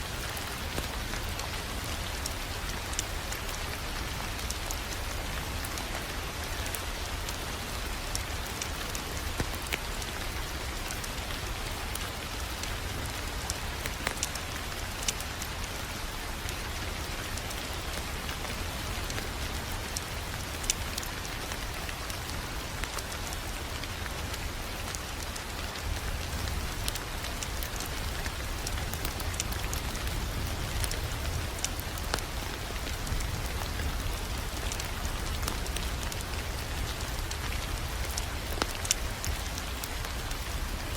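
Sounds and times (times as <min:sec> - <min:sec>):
wood fire crackling: 0:00.1 - 0:40.9.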